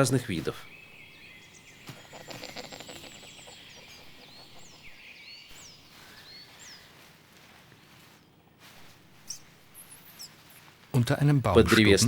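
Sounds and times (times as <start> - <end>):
small birds chirping: 0.0 - 12.0
rustling in leaf litter: 1.0 - 12.0.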